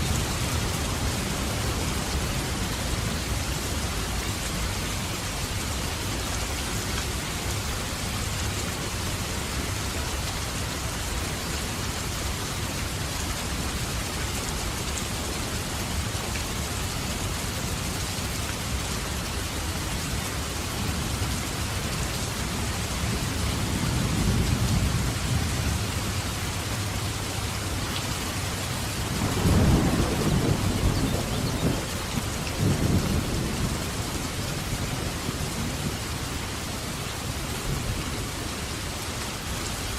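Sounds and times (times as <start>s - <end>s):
heavy rain: 0.0s - 39.9s
thunder rumbling: 29.0s - 36.0s.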